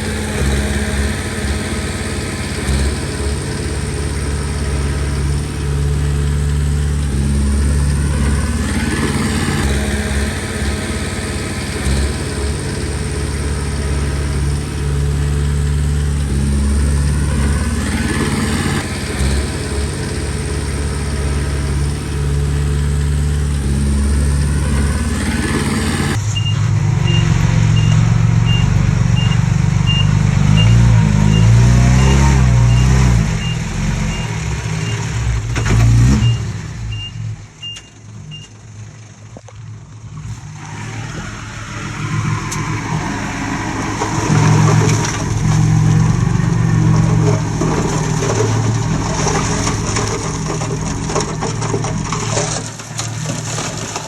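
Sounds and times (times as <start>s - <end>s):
bulldozer diesel engine working: 0.0s - 54.0s
high beep: 26.4s - 35.0s.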